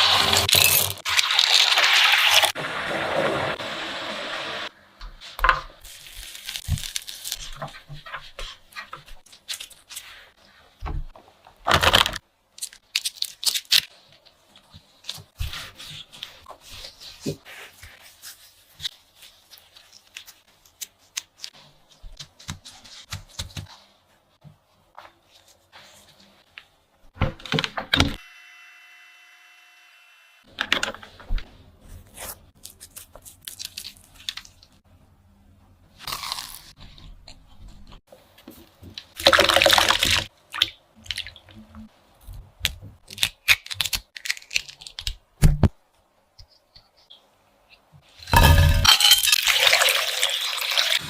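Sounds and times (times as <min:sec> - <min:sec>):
rustling tearing bursts: 0:05.8 - 0:07.6, 0:43.1 - 0:45.2.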